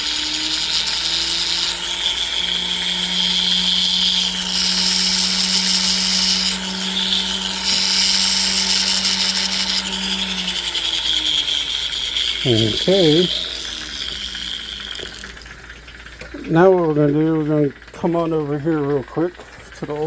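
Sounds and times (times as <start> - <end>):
high grinding hiss: 0.0 - 20.0
rotary tool motor hum: 0.0 - 20.0.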